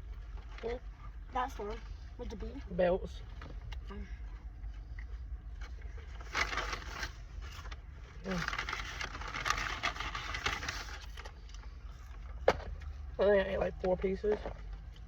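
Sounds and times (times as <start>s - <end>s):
food packaging crinkling: 5.6s - 12.2s.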